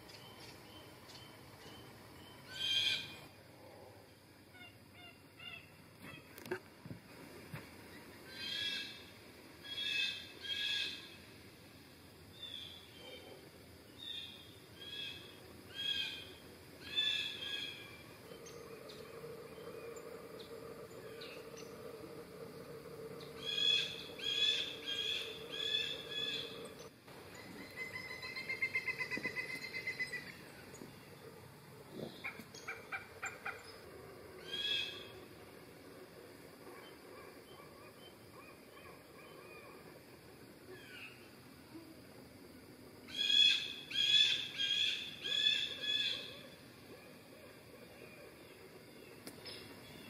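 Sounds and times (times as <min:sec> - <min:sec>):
faint low hum: 0:00.0 - 0:50.0
wild birds calling: 0:00.1 - 0:03.3, 0:12.4 - 0:40.1, 0:43.1 - 0:50.0.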